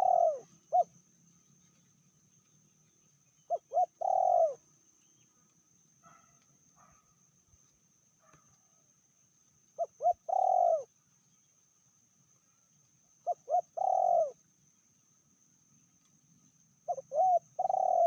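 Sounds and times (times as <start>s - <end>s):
dove cooing: 0.0s - 1.0s, 3.5s - 4.6s, 9.8s - 10.9s, 13.2s - 14.4s, 16.8s - 18.0s.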